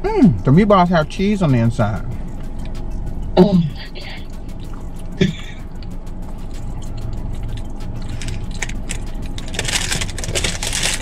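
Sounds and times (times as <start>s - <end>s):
steady low hum: 0.0s - 11.0s
chewing and mouth clicks: 4.2s - 9.4s
paper bag rustling: 8.2s - 11.0s.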